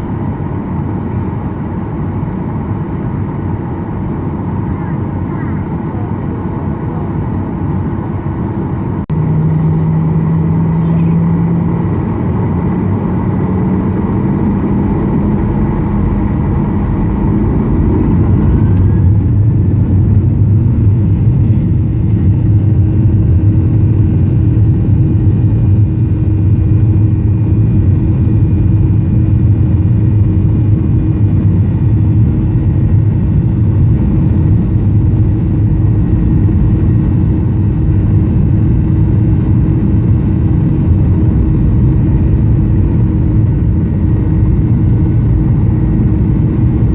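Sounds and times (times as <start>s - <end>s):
aircraft engine and airflow rumble: 0.0s - 46.9s.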